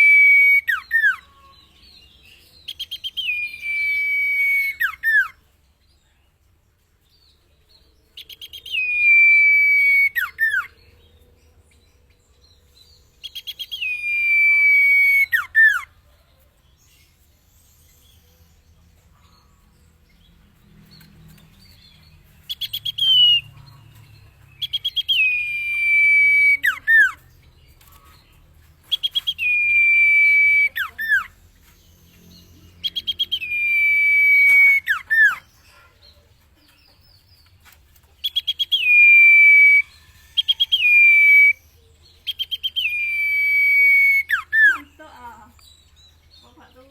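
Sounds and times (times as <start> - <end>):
iora singing rattle and whistle: 24.6 - 27.3, 28.9 - 31.4, 32.8 - 35.4.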